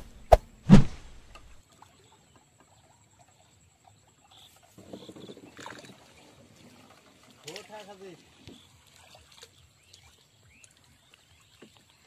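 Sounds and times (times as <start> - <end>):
loud thump sound effect: 0.0 - 1.6.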